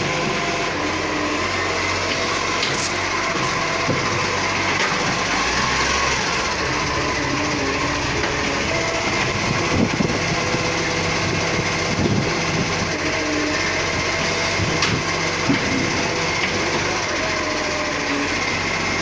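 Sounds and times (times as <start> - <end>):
garbage truck engine hum: 0.0 - 19.0
mechanical knocks and clanks: 14.2 - 16.6.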